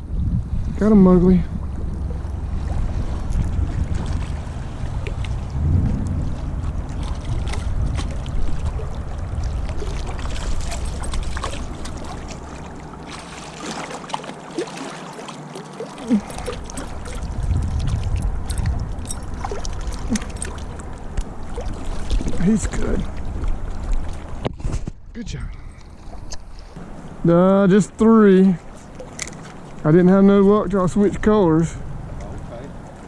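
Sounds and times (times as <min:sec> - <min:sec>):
wind buffeting microphone: 0:00.0 - 0:13.1, 0:16.1 - 0:26.9
river water rushing: 0:01.7 - 0:24.4.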